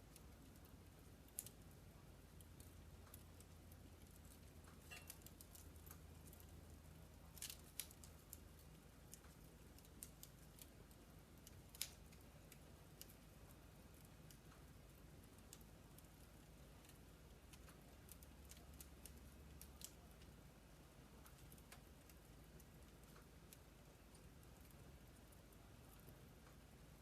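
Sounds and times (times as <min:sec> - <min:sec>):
faint low steady hum: 0:00.0 - 0:27.0
logs crackling in fireplace: 0:00.0 - 0:27.0
sharp fire pops: 0:11.4 - 0:13.1.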